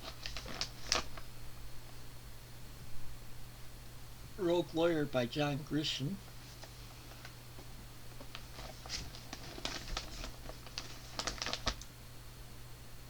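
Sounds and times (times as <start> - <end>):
books tapping and rustling: 6.6 - 11.8.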